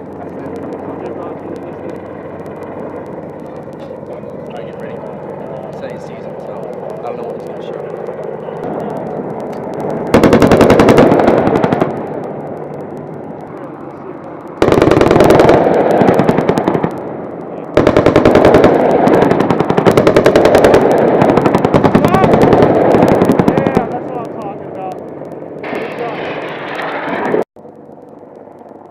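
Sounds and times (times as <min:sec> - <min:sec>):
helicopter hum: 0:00.0 - 0:28.9
chain gun firing bursts: 0:09.8 - 0:12.0.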